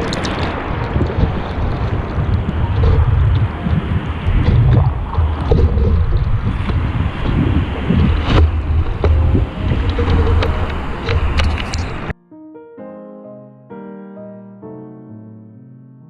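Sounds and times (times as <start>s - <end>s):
ocean surf: 0.0s - 12.2s
wind buffeting microphone: 0.0s - 12.2s.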